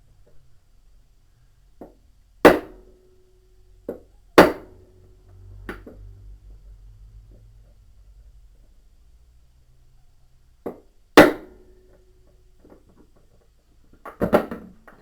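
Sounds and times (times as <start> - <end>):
hammer striking metal: 4.4 - 4.9.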